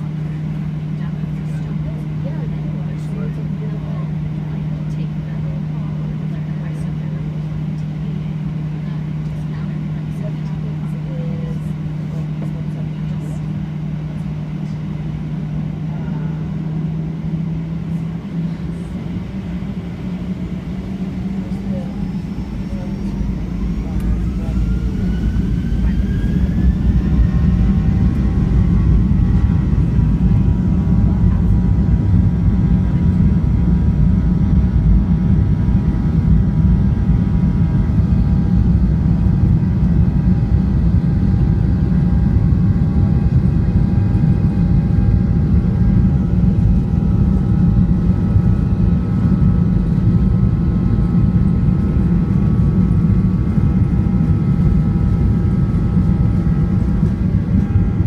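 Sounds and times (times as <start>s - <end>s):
jet engines roaring in cabin: 0.0s - 58.0s.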